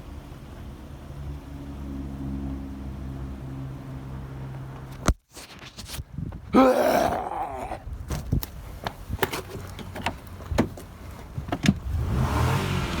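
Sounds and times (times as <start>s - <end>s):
truck door clicks and knocks: 8.1s - 11.8s.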